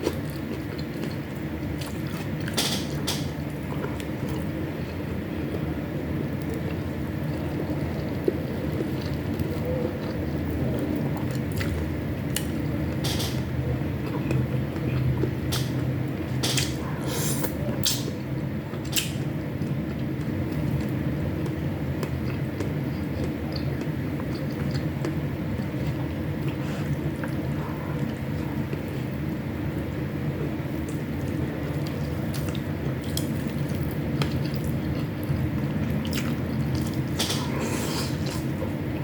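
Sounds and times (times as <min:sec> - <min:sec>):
person chewing food: 0:00.0 - 0:02.6, 0:06.4 - 0:13.0, 0:13.7 - 0:29.4, 0:30.7 - 0:39.0
steady low hum: 0:00.0 - 0:39.0.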